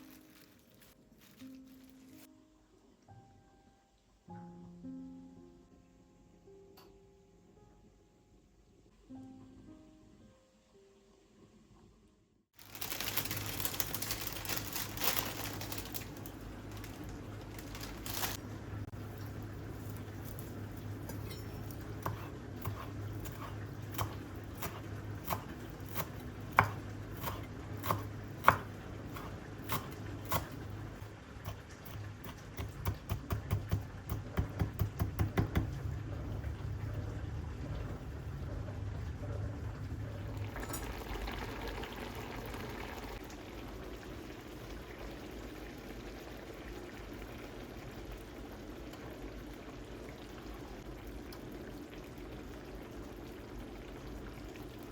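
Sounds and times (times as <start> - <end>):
low steady hum: 12.6 - 54.9
liquid pouring: 36.2 - 44.8.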